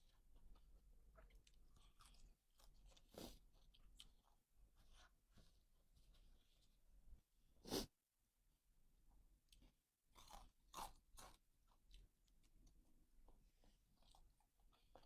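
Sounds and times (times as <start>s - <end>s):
person chewing: 0.1s - 5.1s, 9.5s - 12.5s, 13.6s - 15.0s.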